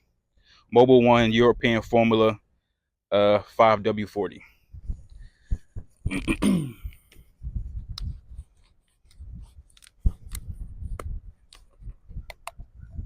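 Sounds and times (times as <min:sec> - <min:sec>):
sharp clicks: 0:09.0 - 0:12.7.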